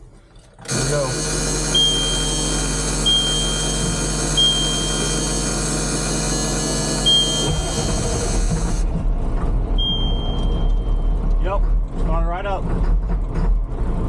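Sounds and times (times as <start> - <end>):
diesel engine starting and running rough: 0.0 - 14.0
warning buzzer beeping: 0.7 - 8.8.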